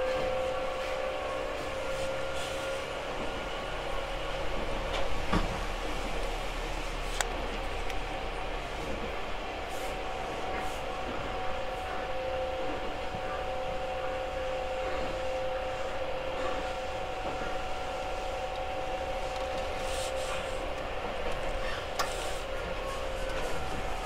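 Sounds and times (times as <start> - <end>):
electric train hum with held tones: 0.0 - 24.0
wheel and track noise: 16.3 - 24.0.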